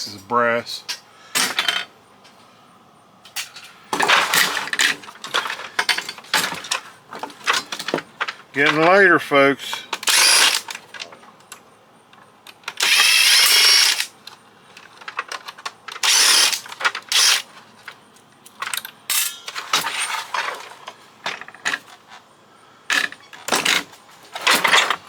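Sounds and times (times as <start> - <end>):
clicks and knocks of plastic parts: 3.3 - 9.0, 9.7 - 22.2, 22.9 - 25.0
power screwdriver running: 10.0 - 10.7, 12.8 - 14.1, 16.0 - 17.4.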